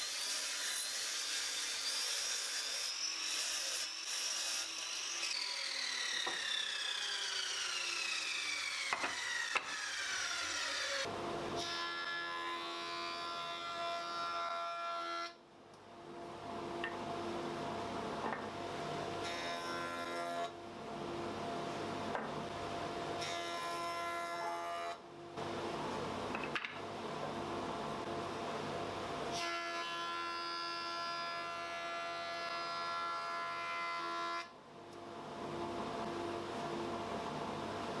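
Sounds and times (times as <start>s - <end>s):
woodworking power tool cutting wood: 0.0s - 14.6s.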